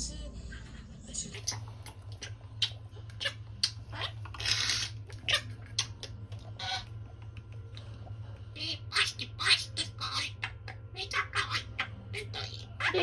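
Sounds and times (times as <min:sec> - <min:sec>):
steady low hum: 0:00.0 - 0:13.0
harsh bird squawk: 0:01.4 - 0:06.9.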